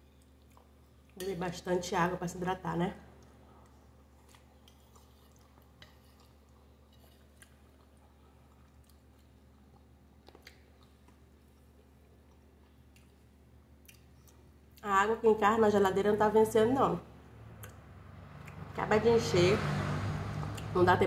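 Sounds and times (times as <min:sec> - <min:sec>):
person chewing pasta: 0:00.0 - 0:01.2, 0:03.2 - 0:14.8
low steady hum: 0:00.0 - 0:21.0.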